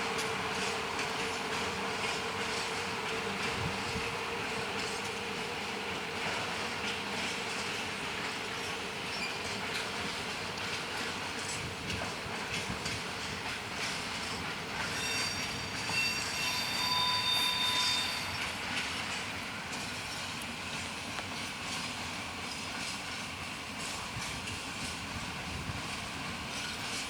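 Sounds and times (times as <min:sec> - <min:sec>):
freight train rumbling: 0:00.0 - 0:27.0
train wheels squealing: 0:06.3 - 0:11.7, 0:12.6 - 0:21.5, 0:26.5 - 0:27.0.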